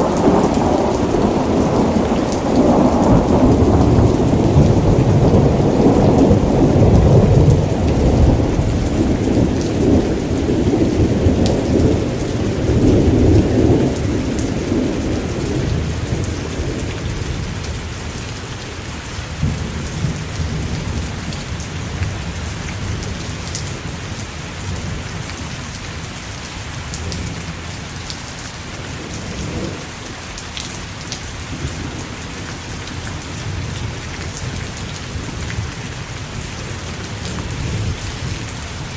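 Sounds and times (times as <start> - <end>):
rolling thunder: 0.0 - 17.9, 19.4 - 24.0, 28.9 - 29.9
heavy rain: 0.0 - 38.9.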